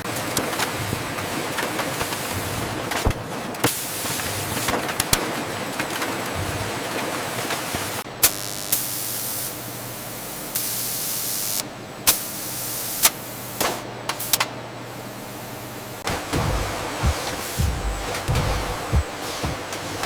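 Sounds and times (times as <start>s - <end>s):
factory machinery humming: 14.1s - 20.0s.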